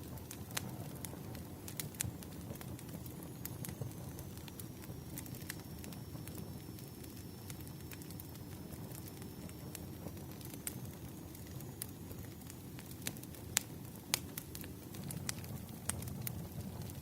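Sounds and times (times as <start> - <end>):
fire pops: 0.0 - 17.0
wood fire crackling: 0.0 - 17.0
faint high whistle: 3.8 - 9.8.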